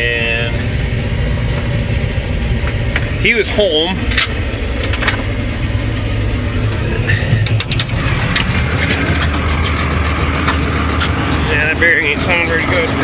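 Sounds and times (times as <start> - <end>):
tractor engine running: 0.0 - 13.0
man talking: 3.2 - 4.0, 11.3 - 13.0.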